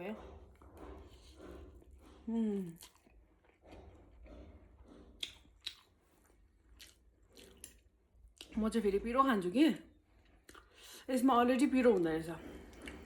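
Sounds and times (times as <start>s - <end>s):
person chewing noodles: 0.3s - 8.5s, 10.2s - 10.9s, 12.5s - 13.0s.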